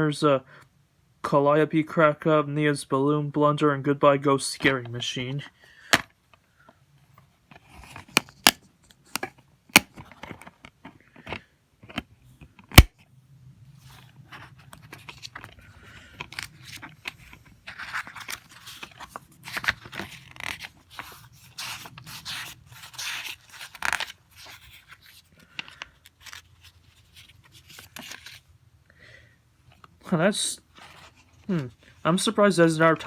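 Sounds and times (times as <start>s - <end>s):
scratchy rustling and scraping: 13.8s - 28.5s, 30.6s - 32.0s.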